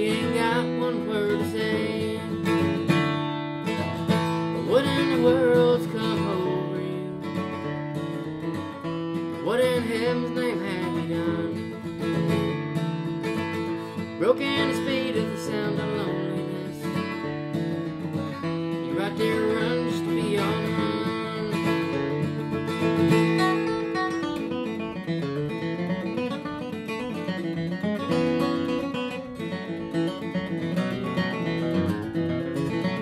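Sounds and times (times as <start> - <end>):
acoustic guitar playing: 0.0 - 33.0.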